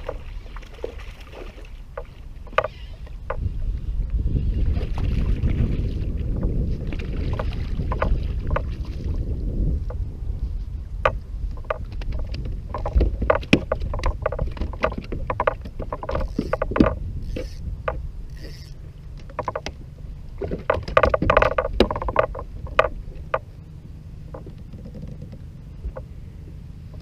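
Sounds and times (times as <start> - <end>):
low rumble of wind and water: 0.0 - 27.0
gear clicks and knocks: 2.0 - 3.5, 7.3 - 8.7, 11.0 - 23.6, 24.3 - 26.1.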